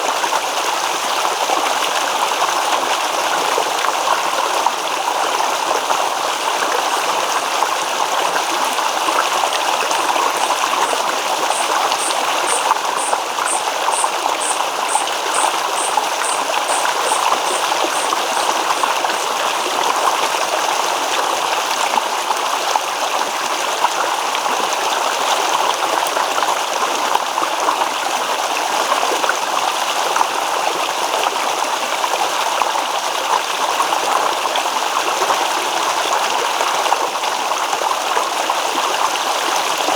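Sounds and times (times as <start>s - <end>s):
stream babbling over stones: 0.0s - 39.9s
repeating high chirp: 9.9s - 19.4s.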